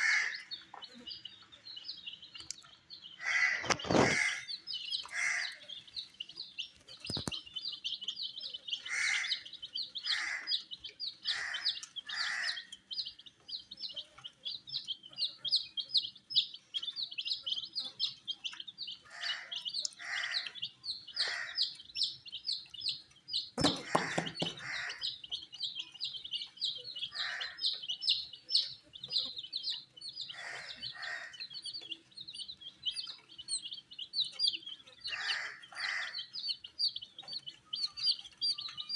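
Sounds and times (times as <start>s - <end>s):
baby chicks peeping: 0.0s - 38.9s
sharp knocks: 23.6s - 24.8s.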